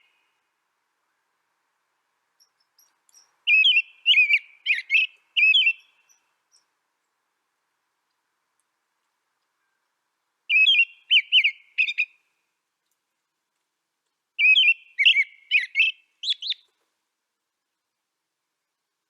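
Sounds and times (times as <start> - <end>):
songbird warbling chirps: 2.3 - 6.8, 9.5 - 12.3, 14.4 - 16.8.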